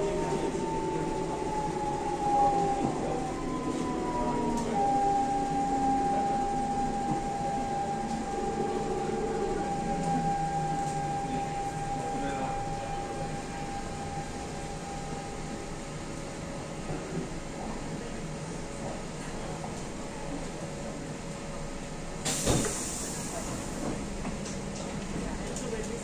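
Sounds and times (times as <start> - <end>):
electric train whine: 0.0 - 19.0
train car low rumble: 0.0 - 26.0.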